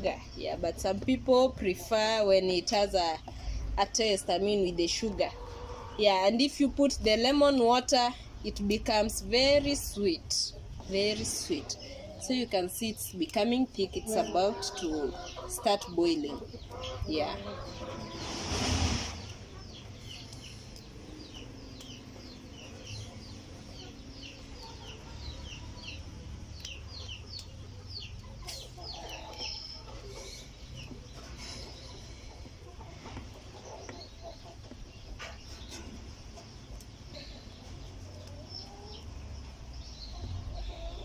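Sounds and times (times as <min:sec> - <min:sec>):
chicks peeping: 0:09.2 - 0:41.0.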